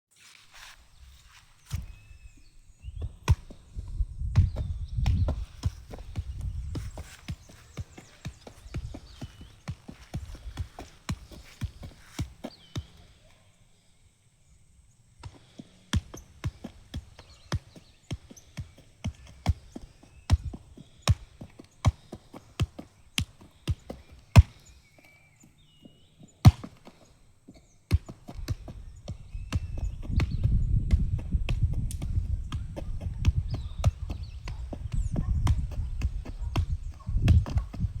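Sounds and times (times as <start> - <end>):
football thuds: 2.9 - 13.0, 15.2 - 24.7, 26.4 - 38.0.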